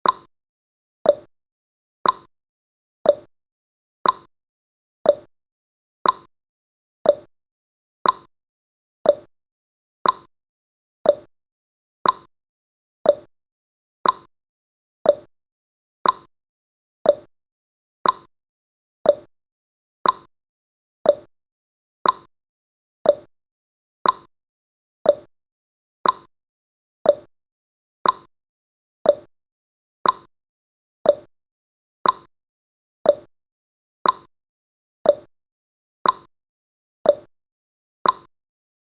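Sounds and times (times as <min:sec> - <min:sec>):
timer ticking: 0:00.0 - 0:00.3, 0:01.0 - 0:01.3, 0:02.0 - 0:02.3, 0:03.0 - 0:03.3, 0:04.0 - 0:04.3, 0:05.1 - 0:05.3, 0:06.0 - 0:06.3, 0:07.0 - 0:07.3, 0:08.0 - 0:08.3, 0:09.0 - 0:09.3, 0:10.0 - 0:10.3, 0:11.0 - 0:11.3, 0:12.0 - 0:12.3, 0:13.0 - 0:13.3, 0:14.0 - 0:14.3, 0:15.0 - 0:15.3, 0:16.0 - 0:16.3, 0:17.0 - 0:17.3, 0:18.0 - 0:18.3, 0:19.0 - 0:19.3, 0:20.0 - 0:20.3, 0:21.0 - 0:21.3, 0:22.0 - 0:22.3, 0:23.0 - 0:23.3, 0:24.0 - 0:24.3, 0:25.0 - 0:25.3, 0:26.0 - 0:26.3, 0:27.0 - 0:27.3, 0:28.0 - 0:28.3, 0:29.0 - 0:29.3, 0:30.0 - 0:30.3, 0:31.0 - 0:31.3, 0:32.0 - 0:32.3, 0:33.0 - 0:33.3, 0:34.0 - 0:34.3, 0:35.0 - 0:35.3, 0:36.0 - 0:36.3, 0:37.1 - 0:37.3, 0:38.0 - 0:38.3.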